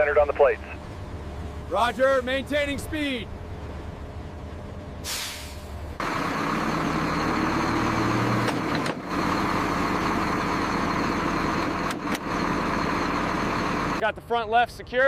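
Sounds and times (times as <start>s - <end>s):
truck engine running: 0.0s - 14.3s
air brakes hissing: 5.0s - 5.8s.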